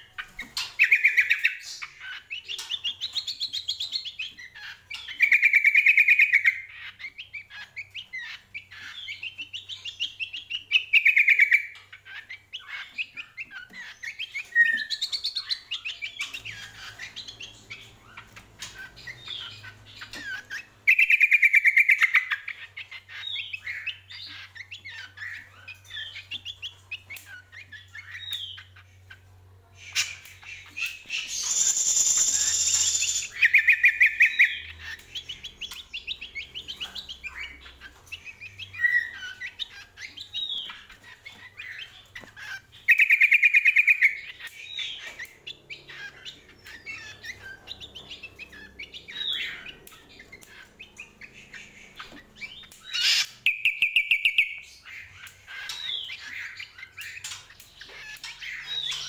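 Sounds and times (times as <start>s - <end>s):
bird chattering chirps: 0.0s - 59.0s
bird trilling: 29.9s - 59.0s.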